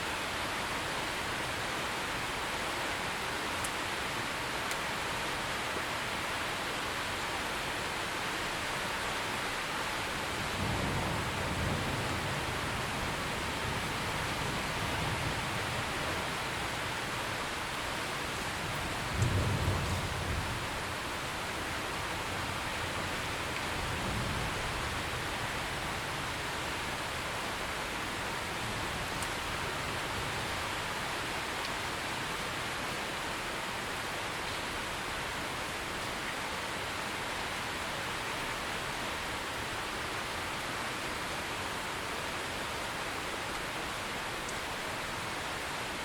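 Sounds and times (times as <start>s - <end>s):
steady rain falling: 0.0s - 46.0s
thunder rumbling: 18.7s - 20.8s.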